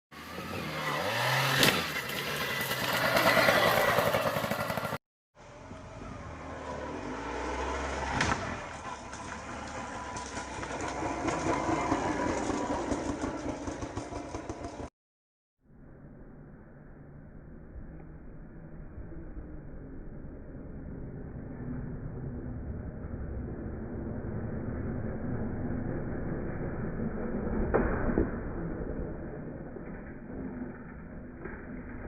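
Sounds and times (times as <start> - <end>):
motocross bike engines revving: 0.2 - 14.9.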